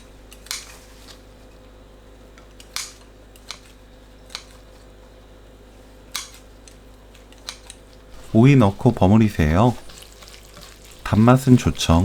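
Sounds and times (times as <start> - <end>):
scissors snipping: 0.3 - 0.7, 2.6 - 4.6, 6.1 - 7.8.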